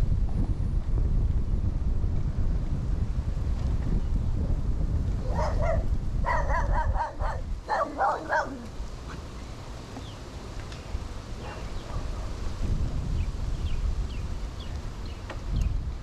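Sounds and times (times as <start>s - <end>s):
wind rumble on microphone: 0.0s - 16.0s
dog barking: 5.3s - 8.7s, 11.4s - 12.4s.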